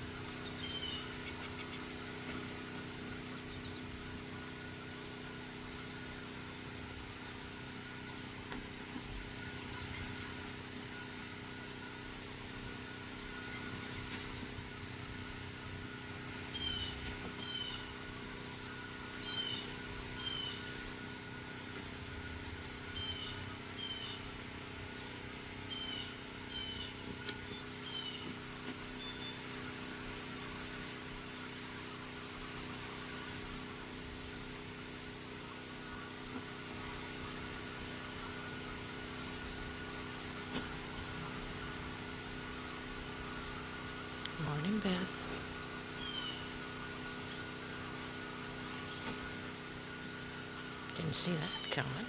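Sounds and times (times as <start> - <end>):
steady mechanical hum: 0.0 - 52.0
blue jay harsh calls: 0.3 - 1.9, 16.4 - 18.2, 19.1 - 21.0, 22.9 - 24.3, 25.6 - 27.1, 27.8 - 28.4, 44.4 - 47.4, 51.0 - 52.0.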